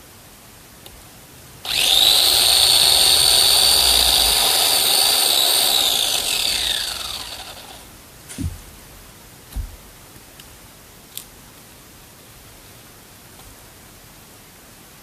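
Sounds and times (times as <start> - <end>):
electric chainsaw whining: 1.6 - 7.9.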